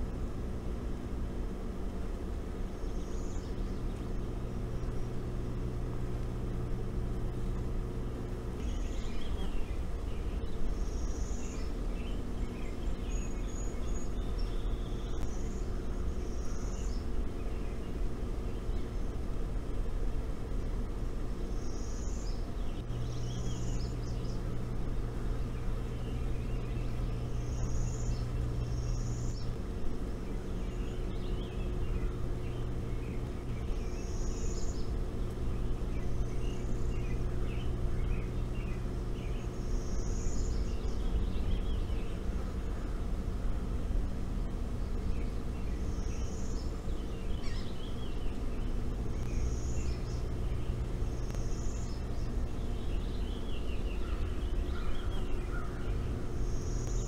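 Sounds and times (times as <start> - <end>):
small birds chirping: 0.0 - 19.8, 20.4 - 57.0
steady low hum: 0.0 - 57.0.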